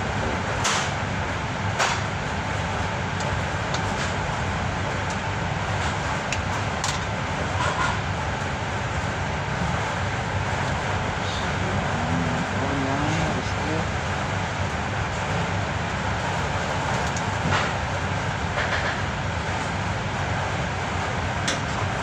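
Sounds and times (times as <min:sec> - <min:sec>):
low background rumble: 0:08.2 - 0:18.6.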